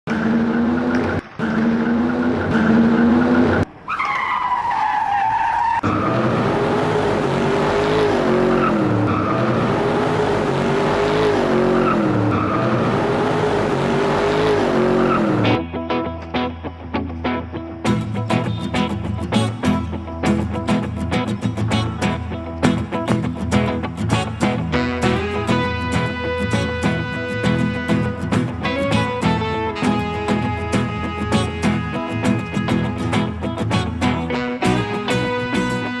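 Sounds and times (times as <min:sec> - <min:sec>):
race car engine revving: 0:00.1 - 0:03.6, 0:05.8 - 0:15.6
tire squeal: 0:00.2 - 0:15.6.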